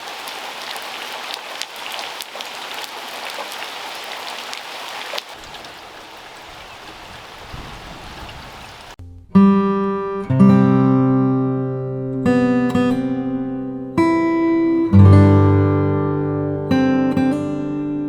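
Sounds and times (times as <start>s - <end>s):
rain falling: 0.0s - 9.0s
raindrops striking close by: 0.0s - 9.0s.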